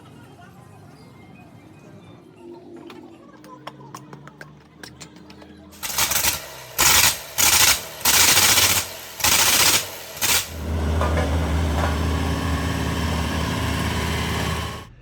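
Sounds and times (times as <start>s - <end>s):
diesel engine running: 5.8s - 15.0s
loud hissing bursts: 5.8s - 15.0s.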